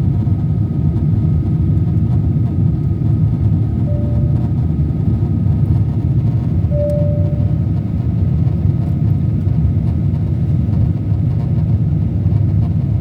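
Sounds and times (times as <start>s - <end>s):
airliner cabin rumble: 0.0s - 13.0s
faint steady high tone: 3.9s - 4.8s, 6.7s - 7.8s.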